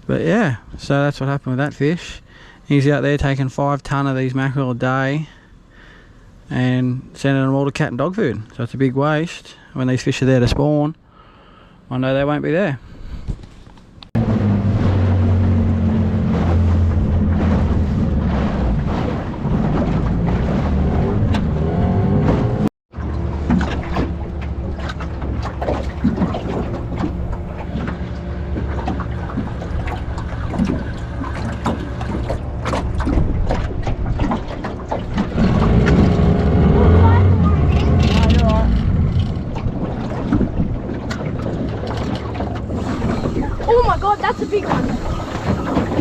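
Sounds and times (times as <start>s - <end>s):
water and hull noise: 0.0s - 46.0s
outboard motor running: 14.2s - 46.0s.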